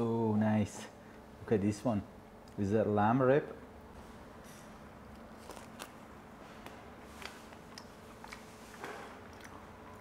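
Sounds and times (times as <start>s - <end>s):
low room hum: 0.0s - 10.0s
man chewing crunchy meat: 7.0s - 10.0s.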